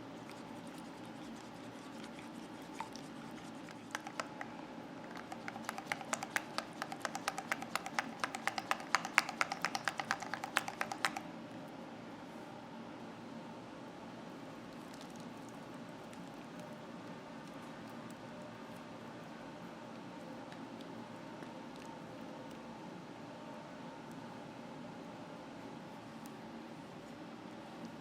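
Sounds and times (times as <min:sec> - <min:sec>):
utensil beating in mixing bowl: 0:00.0 - 0:11.3.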